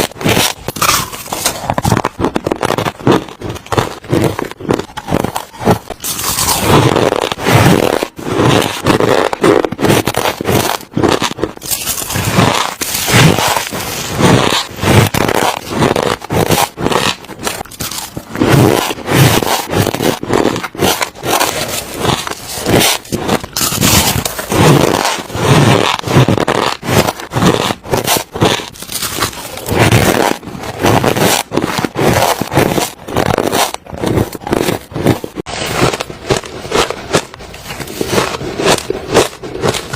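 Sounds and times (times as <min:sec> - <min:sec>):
ice being chewed crunching: 0:00.0 - 0:39.9.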